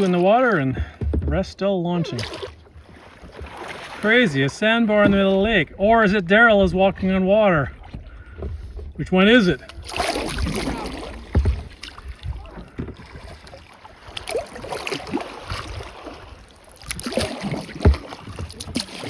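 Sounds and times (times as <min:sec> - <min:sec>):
kayak paddles splashing in water: 0:00.0 - 0:19.0
low thumps: 0:04.3 - 0:13.1.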